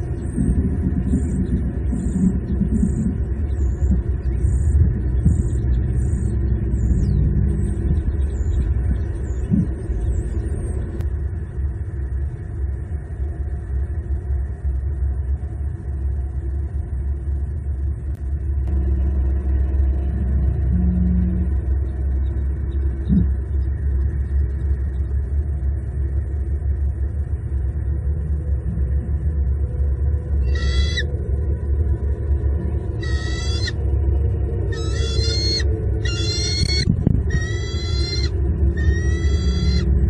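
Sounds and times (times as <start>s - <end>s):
steady low rumble: 0.0s - 40.0s
faint high bird chirps: 30.4s - 31.2s, 33.0s - 33.8s, 34.7s - 39.9s.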